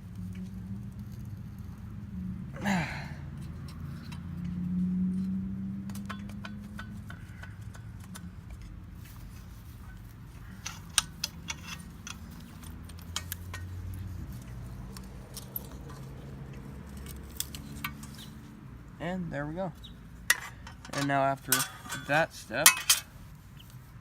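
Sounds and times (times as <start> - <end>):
hand tools clicking on metal: 3.4 - 4.6, 5.2 - 18.6, 19.6 - 23.8.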